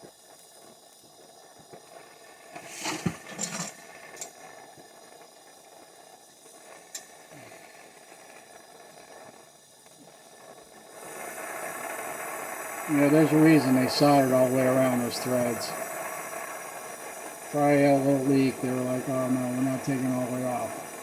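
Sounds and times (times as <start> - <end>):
faint steady hiss: 0.0 - 21.0
metal tools clanking on pipe fittings: 2.8 - 3.8.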